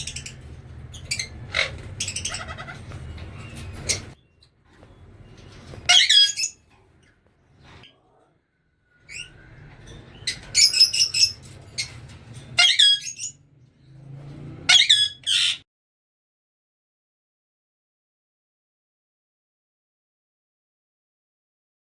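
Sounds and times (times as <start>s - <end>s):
parrots squawking: 0.0s - 4.2s, 5.8s - 6.6s, 9.1s - 13.4s, 14.6s - 15.6s.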